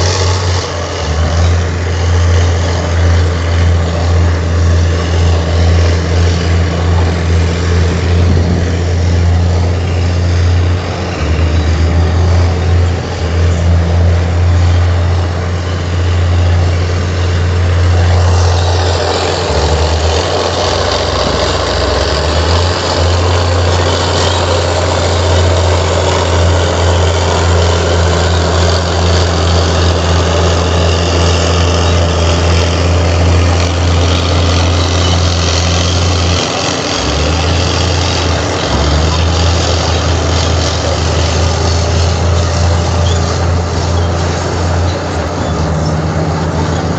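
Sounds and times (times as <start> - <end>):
bulldozer diesel engine running: 0.0 - 46.9.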